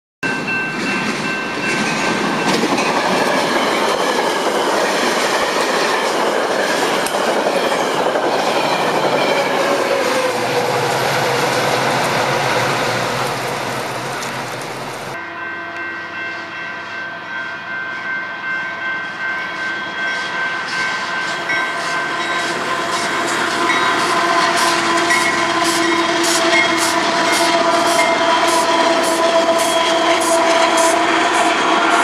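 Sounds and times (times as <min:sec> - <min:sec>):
train wheel and rail noise: 0:00.2 - 0:32.0
wheels clacking over rail joints: 0:00.7 - 0:15.2.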